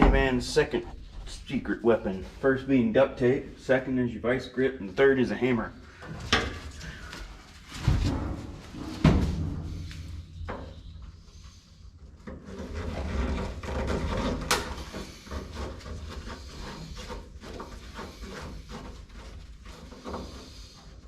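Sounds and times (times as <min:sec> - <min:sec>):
tools scraping and rattling metal: 0:05.9 - 0:11.1, 0:12.2 - 0:21.0.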